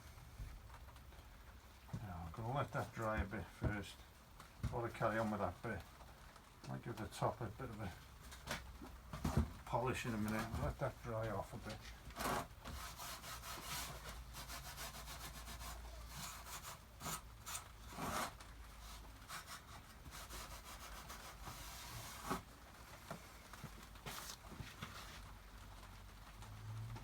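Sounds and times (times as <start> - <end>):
rubbing on wooden box: 9.2 - 22.5.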